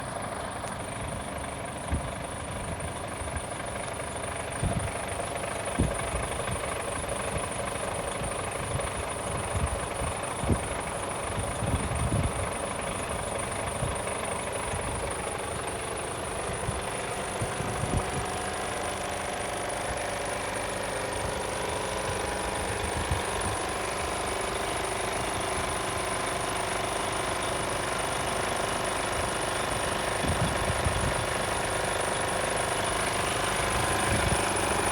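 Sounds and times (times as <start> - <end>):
diesel truck engine idling: 0.0 - 34.9.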